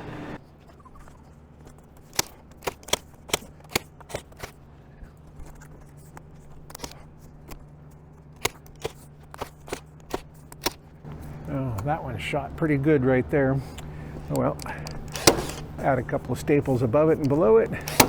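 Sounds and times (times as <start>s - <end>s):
steady low hum: 0.0s - 18.0s
handling clicks: 1.6s - 4.7s, 5.4s - 12.7s, 13.6s - 18.0s
staple gun clacks: 2.0s - 4.6s, 8.4s - 10.8s, 14.3s - 15.8s, 17.2s - 18.0s.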